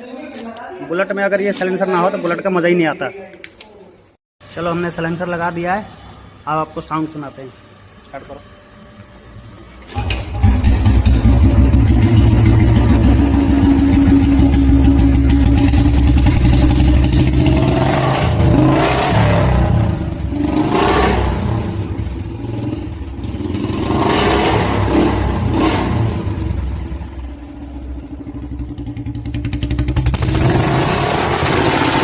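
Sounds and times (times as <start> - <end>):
motorcycle engine idling and revving: 9.6 - 32.0.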